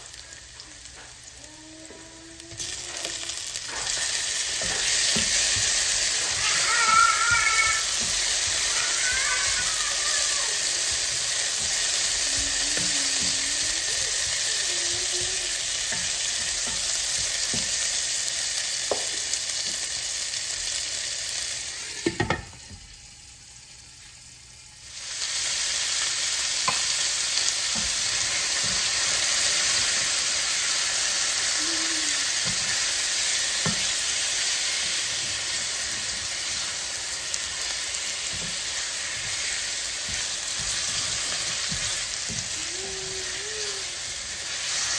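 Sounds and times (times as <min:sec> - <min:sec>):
chicken sizzling: 0:00.0 - 0:44.9
food sizzling in oil: 0:00.0 - 0:44.9
spatula scraping and tapping pan: 0:03.6 - 0:09.8.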